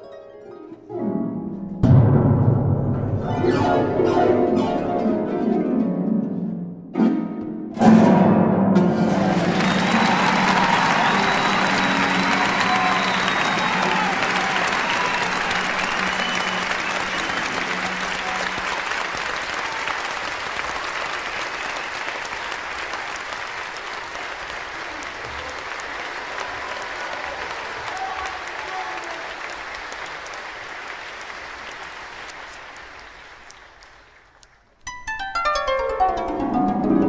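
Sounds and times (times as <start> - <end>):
audience applauding: 8.9 - 34.8.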